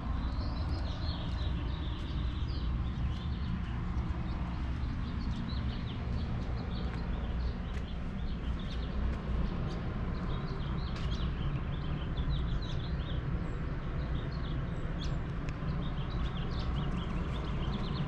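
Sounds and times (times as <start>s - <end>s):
steady low rumble: 0.0s - 12.5s
small birds chirping: 0.0s - 18.0s.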